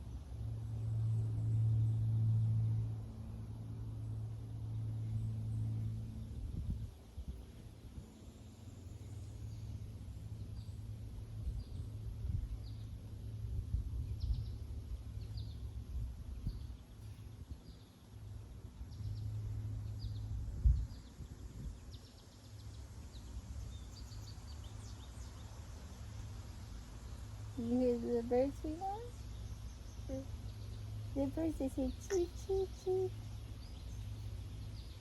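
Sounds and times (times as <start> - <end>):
steady low rumble: 0.0 - 35.0
birds chirping: 21.9 - 35.0.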